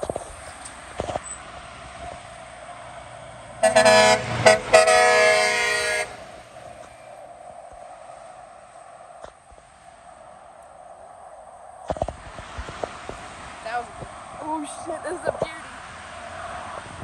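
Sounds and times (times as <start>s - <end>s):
passing truck engine: 0.0s - 17.0s
truck air horn blasts: 3.6s - 7.2s.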